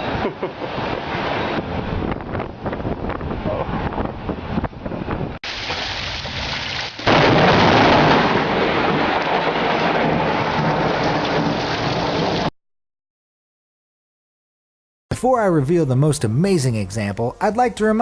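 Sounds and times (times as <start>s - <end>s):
thunder rumbling: 0.0s - 12.5s
rain falling: 5.4s - 12.5s.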